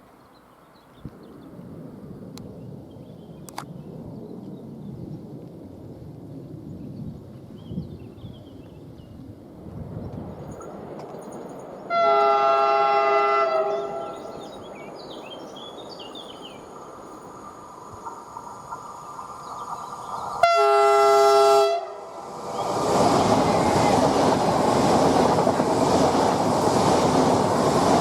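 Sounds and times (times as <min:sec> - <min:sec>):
train horn blasts: 0:11.9 - 0:14.3, 0:20.4 - 0:22.1.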